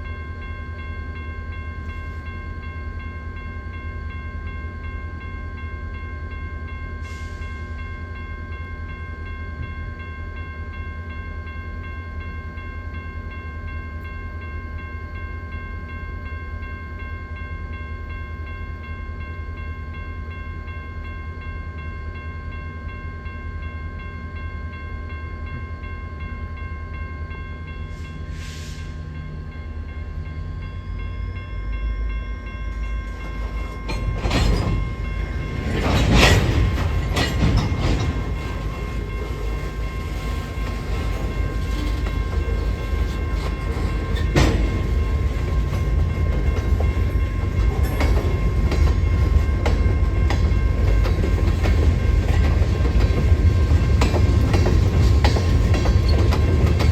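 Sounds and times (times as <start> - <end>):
train rumbling: 22.4 - 56.9.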